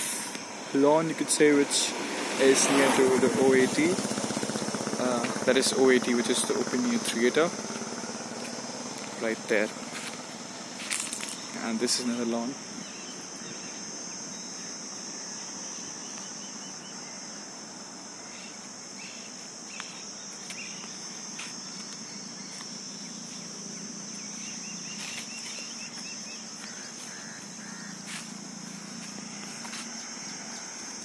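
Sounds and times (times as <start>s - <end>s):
insects droning: 0.0s - 31.0s
bird chirps: 12.7s - 17.2s, 18.3s - 21.0s, 21.7s - 28.3s.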